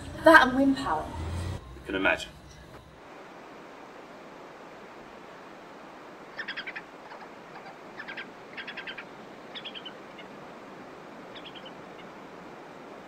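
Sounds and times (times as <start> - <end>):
night ambience hiss: 0.0 - 13.0
bird chirping rapidly: 6.3 - 10.4, 11.3 - 12.2.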